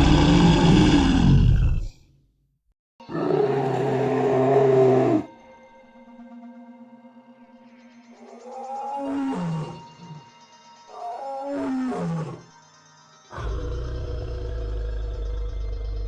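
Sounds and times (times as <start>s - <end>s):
soft background music: 3.0s - 16.0s
large animal calling: 3.1s - 5.3s.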